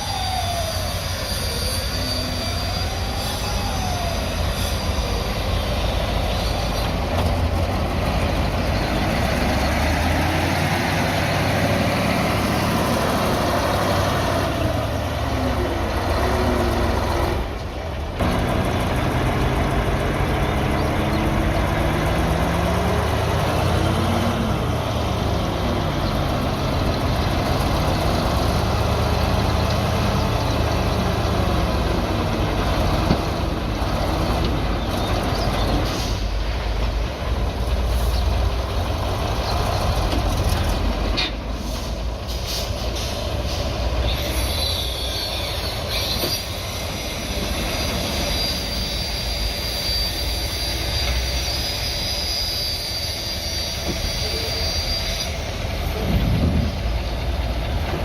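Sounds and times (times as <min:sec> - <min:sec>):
metallic squeal from steel tracks: 0:00.0 - 0:10.6, 0:20.8 - 0:36.8, 0:39.3 - 0:57.2
bulldozer engine running: 0:02.2 - 0:53.0, 0:53.7 - 0:58.0.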